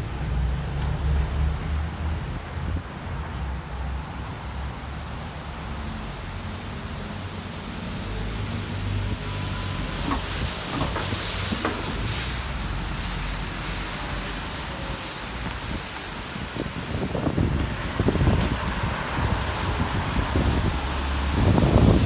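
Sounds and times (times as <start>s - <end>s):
passing traffic: 0.0s - 22.0s
wind rumbling on microphone: 7.9s - 22.0s.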